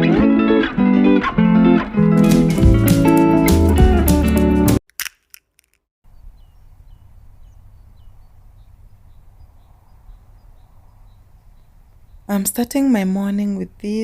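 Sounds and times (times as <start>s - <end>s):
acoustic guitar music: 0.0s - 4.8s
outdoor ambience: 4.9s - 14.0s.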